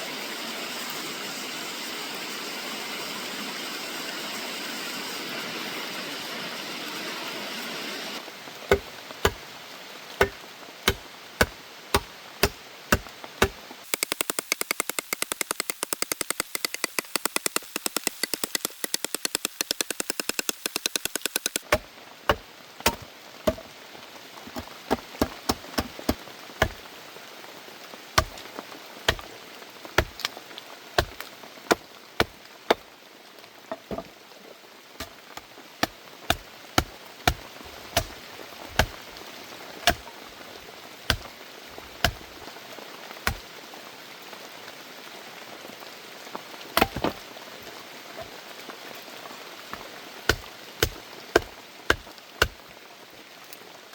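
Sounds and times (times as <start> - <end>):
sharp knocks: 8.7 - 9.4, 10.2 - 11.0, 22.9 - 23.6
fast run of clicks: 13.9 - 21.7.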